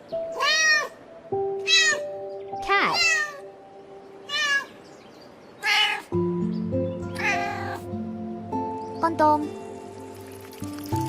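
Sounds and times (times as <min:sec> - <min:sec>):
background music: 0:00.0 - 0:11.0
cat meowing: 0:00.3 - 0:01.0, 0:01.6 - 0:02.2, 0:02.8 - 0:03.5, 0:04.3 - 0:04.7, 0:05.6 - 0:06.2, 0:07.2 - 0:07.8.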